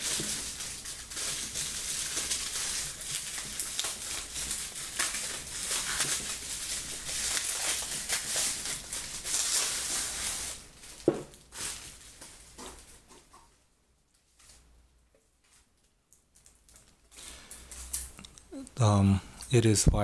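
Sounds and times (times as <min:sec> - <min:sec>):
packaging rustling and crinkling: 0:00.0 - 0:14.7, 0:15.3 - 0:18.2.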